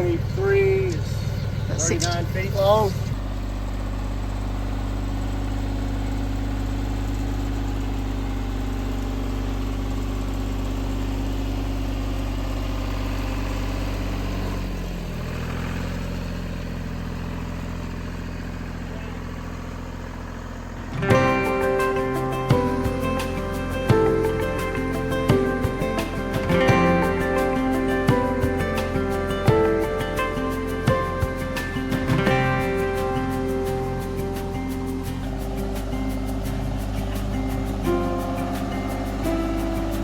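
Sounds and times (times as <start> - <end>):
engine idling: 0.0 - 40.0
music: 21.0 - 40.0.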